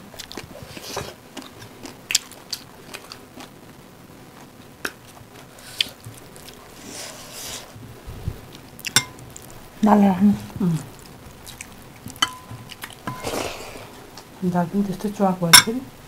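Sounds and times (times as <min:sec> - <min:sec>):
chewing and wet mouth sounds: 0:00.0 - 0:03.6, 0:04.4 - 0:06.7, 0:10.6 - 0:14.3.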